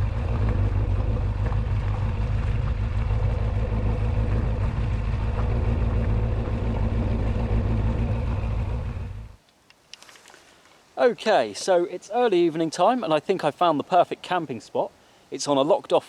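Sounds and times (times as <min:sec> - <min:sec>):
motorcycle engine running: 0:00.0 - 0:09.4
road noise: 0:00.0 - 0:14.4.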